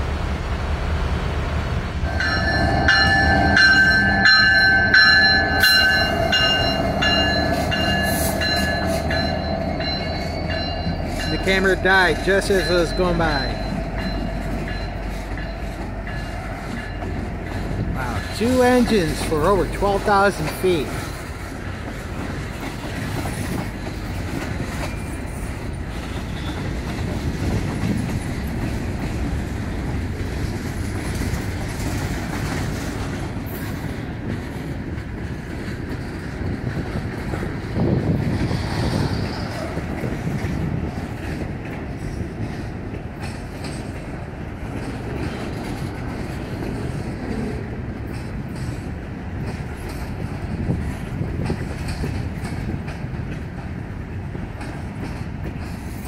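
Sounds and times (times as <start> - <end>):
steel train wheels on rail: 0.0 - 56.0.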